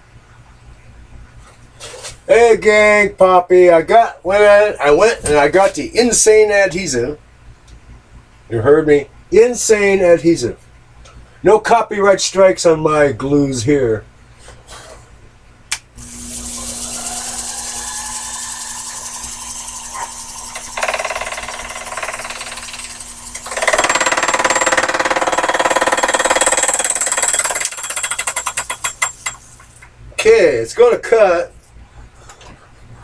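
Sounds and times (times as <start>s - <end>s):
lathe motor humming: 16.0s - 24.2s.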